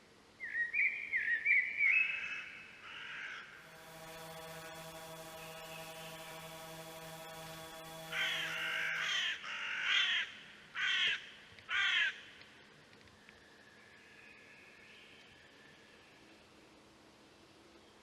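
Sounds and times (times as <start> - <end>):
crow cawing: 2.3 - 3.5, 8.9 - 12.2
steady hum: 3.4 - 9.5.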